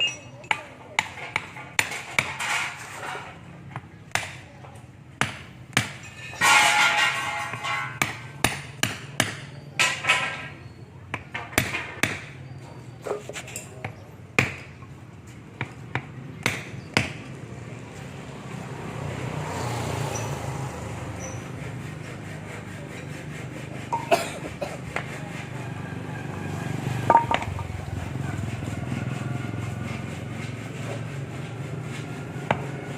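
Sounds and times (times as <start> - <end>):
metal parts knocking and clinking: 0.0 - 0.8, 27.1 - 27.7.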